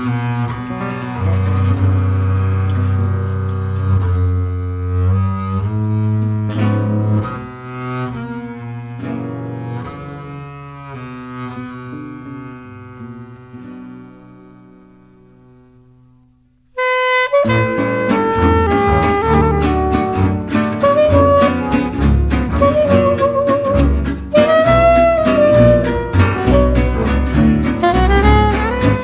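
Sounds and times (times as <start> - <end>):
low bowed strings: 0.0 - 16.0, 17.4 - 29.0.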